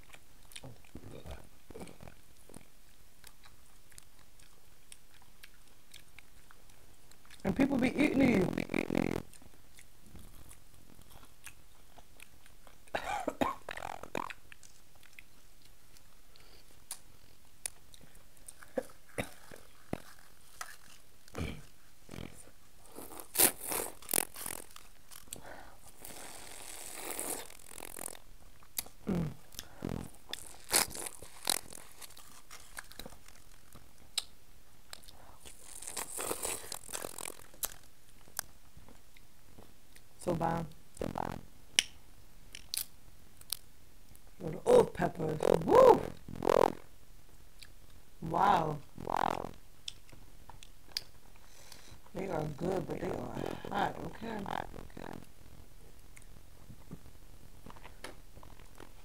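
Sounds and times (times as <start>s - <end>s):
chewing: 0.0s - 7.5s, 9.2s - 13.0s, 13.6s - 39.3s
crab shell cracking and crunching: 23.4s - 25.5s, 30.3s - 34.3s, 34.9s - 38.5s.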